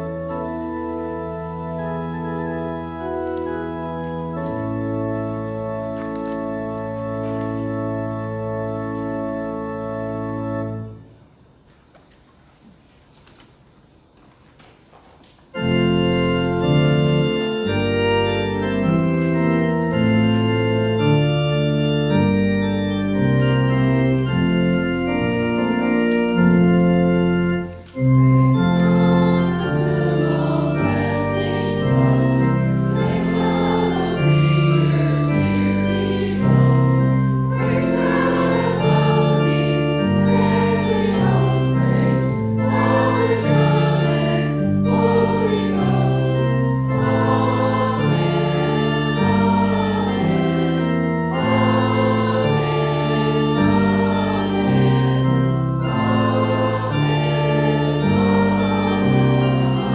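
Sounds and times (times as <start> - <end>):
organ playing hymn chords: 0.0 - 11.7, 15.5 - 59.9
voices singing: 29.6 - 59.9.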